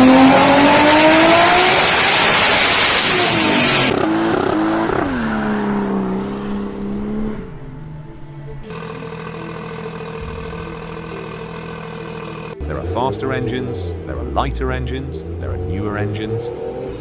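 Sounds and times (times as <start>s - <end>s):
car engine revving: 0.0s - 17.0s
dense high-pitched noise: 7.4s - 17.0s.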